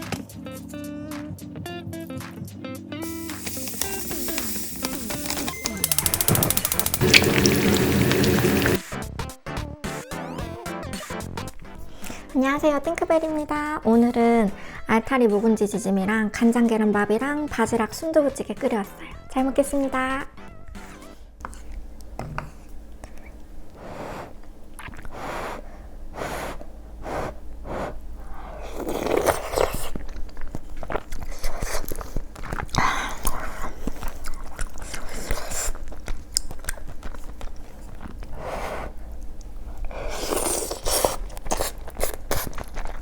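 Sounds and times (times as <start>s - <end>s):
person chewing food: 3.0s - 8.8s, 20.9s - 43.0s.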